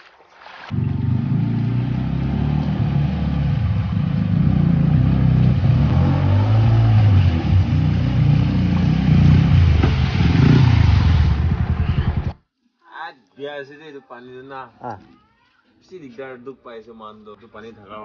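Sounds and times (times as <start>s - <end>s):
vehicle engine running: 0.7s - 12.4s.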